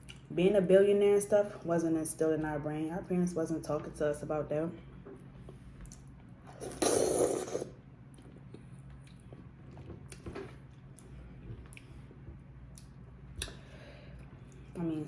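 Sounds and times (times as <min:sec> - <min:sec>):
person chewing food: 0:05.4 - 0:13.6.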